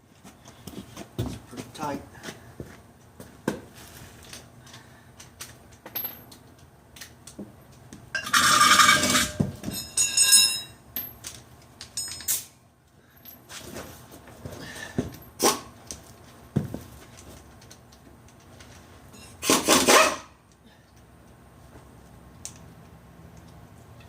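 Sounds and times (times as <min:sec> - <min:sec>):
metal tools clinking and scraping: 0:08.2 - 0:12.5, 0:17.0 - 0:20.1.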